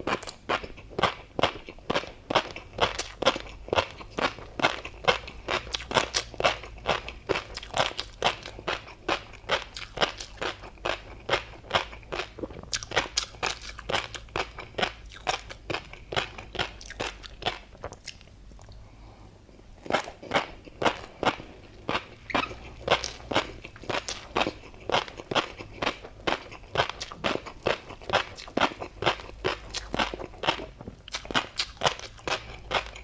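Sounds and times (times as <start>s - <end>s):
chewing crunchy food: 0.0s - 33.0s.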